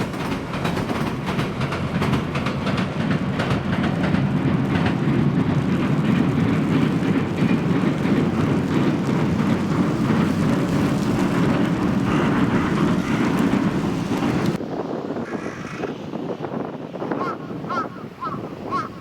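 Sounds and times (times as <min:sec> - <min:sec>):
faint train wheel clicks: 0:00.0 - 0:14.6
train rumbling over bridge: 0:00.0 - 0:19.0.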